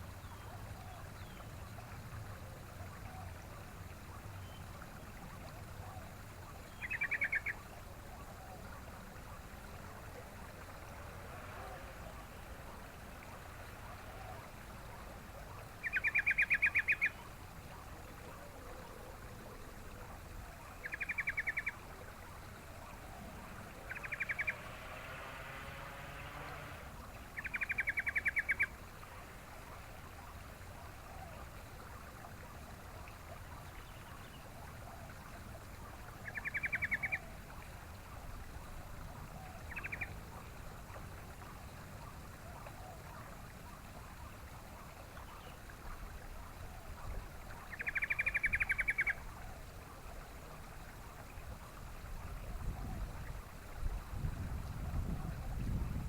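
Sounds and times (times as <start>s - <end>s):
background hiss: 8.8s - 32.0s.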